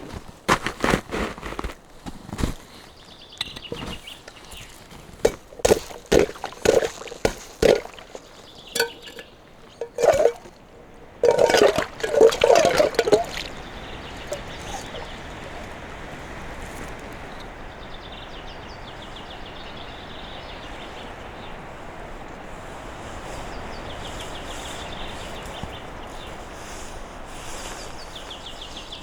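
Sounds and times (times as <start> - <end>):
scuffing in snow: 0.0 - 5.3
footsteps crunching on snow: 0.0 - 10.6.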